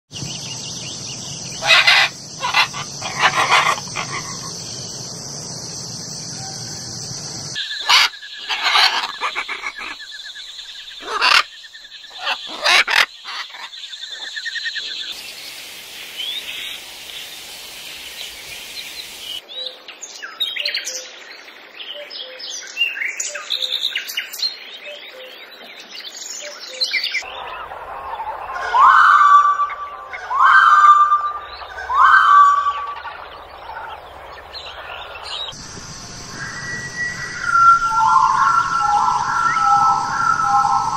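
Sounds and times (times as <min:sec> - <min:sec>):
bird chirping and twittering: 0:00.1 - 0:21.1, 0:21.8 - 0:40.9
macaws squawking: 0:01.6 - 0:04.6, 0:07.8 - 0:10.0, 0:11.0 - 0:11.5, 0:12.1 - 0:13.7, 0:28.5 - 0:34.0.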